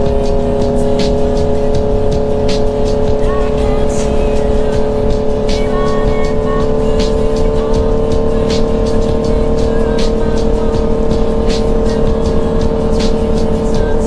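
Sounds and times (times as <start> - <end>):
motorcycle engine running: 0.0 - 14.0
music with a beat: 0.0 - 14.0.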